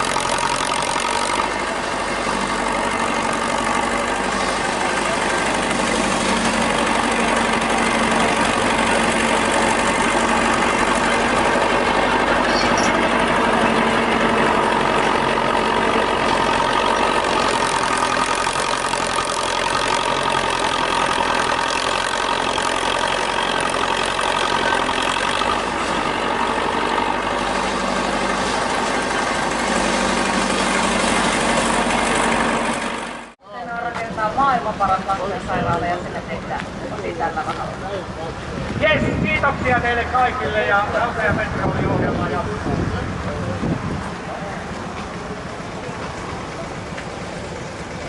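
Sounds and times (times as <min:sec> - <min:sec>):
tractor engine idling: 0:00.0 - 0:48.0.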